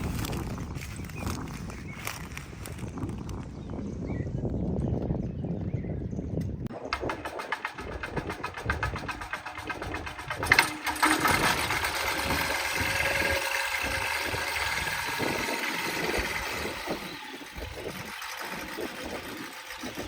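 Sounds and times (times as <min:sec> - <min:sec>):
sharp knock: 0:06.7 - 0:11.8
propeller engine running: 0:06.7 - 0:20.0.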